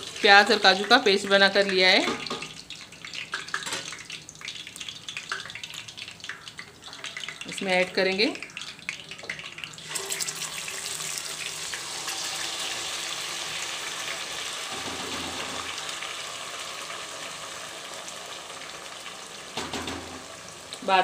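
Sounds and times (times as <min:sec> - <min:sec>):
paste sizzling in hot oil: 0:09.7 - 0:19.6.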